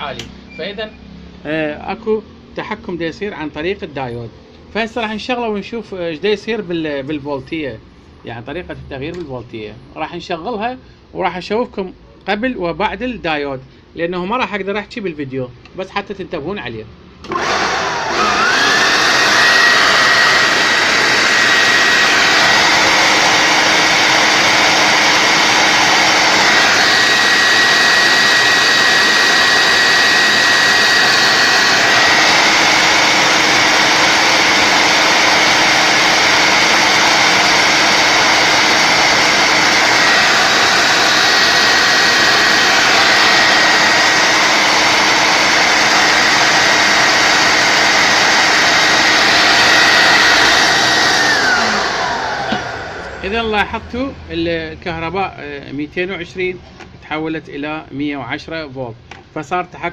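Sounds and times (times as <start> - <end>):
vacuum cleaner running: 17.2 - 54.3.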